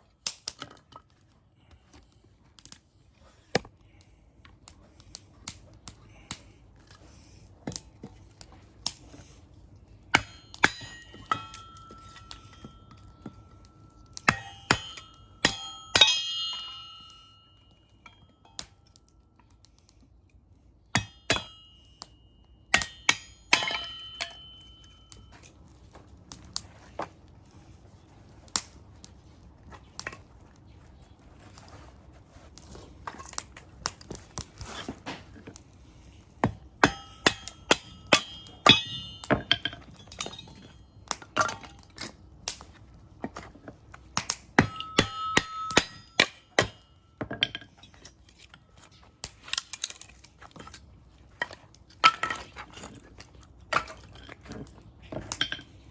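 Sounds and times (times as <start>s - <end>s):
metallic clinks and clangs: 10.1s - 19.4s, 21.0s - 25.6s, 36.8s - 41.9s.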